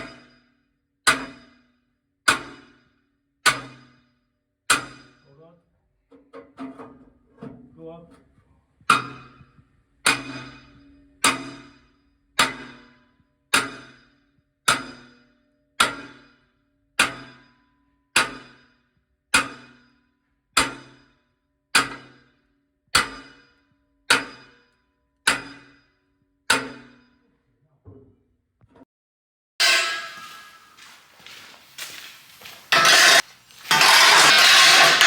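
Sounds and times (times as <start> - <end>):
hammer striking metal drift: 29.6 - 35.0.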